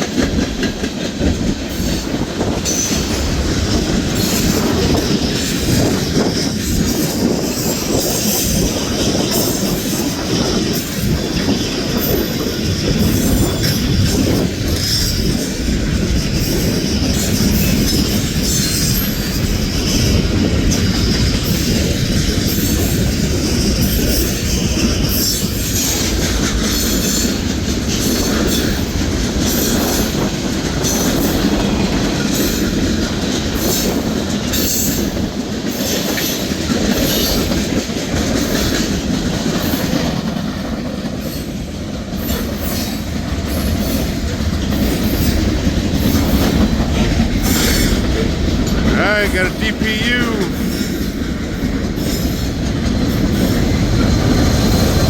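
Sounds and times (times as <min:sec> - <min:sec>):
train cars clattering: 0:00.0 - 0:55.0
train wheels on rails: 0:00.0 - 0:55.0.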